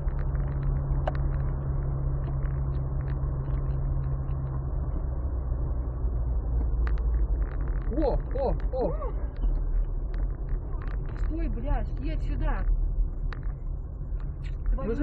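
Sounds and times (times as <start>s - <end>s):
car engine hum: 0.0s - 15.0s
road rumble: 0.0s - 15.0s.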